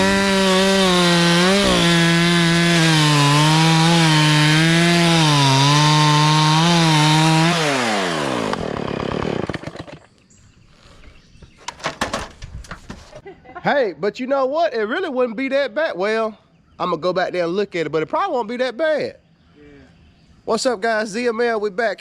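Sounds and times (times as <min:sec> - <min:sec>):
two-stroke chainsaw running: 0:00.0 - 0:10.1.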